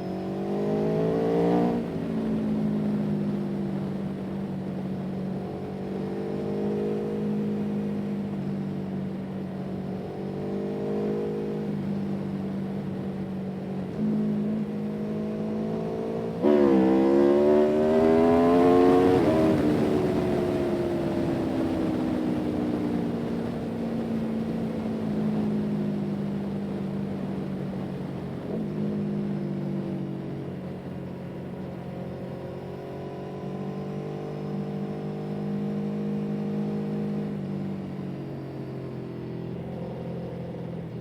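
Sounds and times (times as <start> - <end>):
vehicle engine revving: 13.9 - 22.6.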